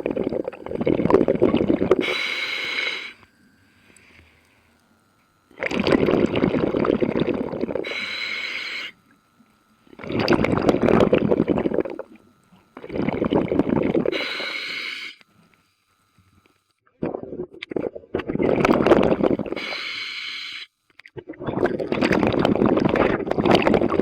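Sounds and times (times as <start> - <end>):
exhaled bubbles gurgling: 0.0 - 3.2, 5.3 - 15.0, 17.0 - 20.0, 21.2 - 24.0
regulator inhale hiss: 1.9 - 4.8, 7.8 - 9.0, 14.1 - 15.8, 19.5 - 20.7.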